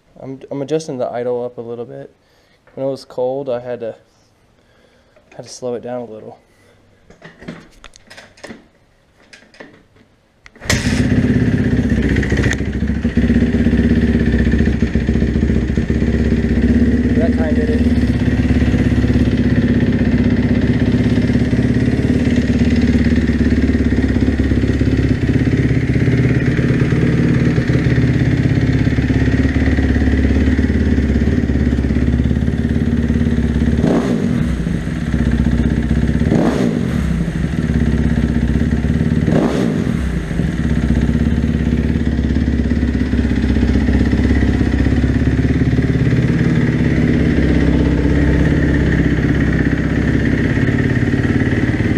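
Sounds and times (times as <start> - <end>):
motorcycle engine idling and revving: 10.6 - 51.9.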